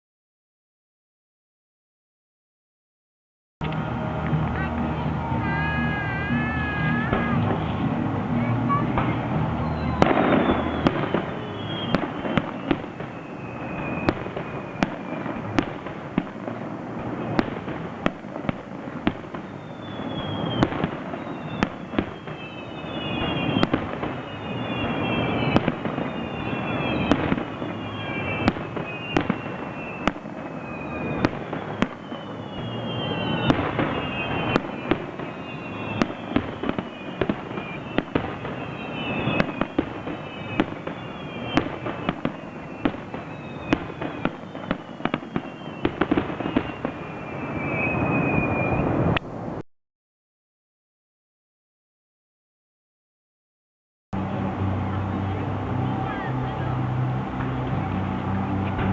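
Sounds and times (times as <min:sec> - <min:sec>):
continuous rumble: 0:03.6 - 0:20.0, 0:54.2 - 0:58.9
fireworks bangs and crackles: 0:03.6 - 0:49.6, 0:54.2 - 0:58.9
falling firework whistles: 0:08.7 - 0:49.6.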